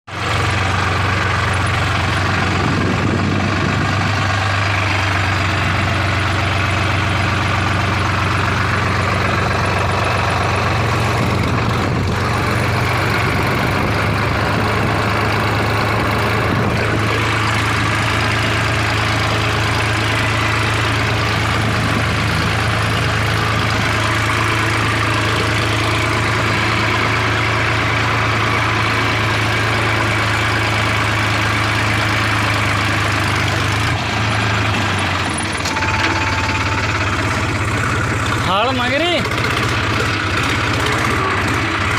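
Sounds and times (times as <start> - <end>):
tractor engine idling: 0.1 - 41.9.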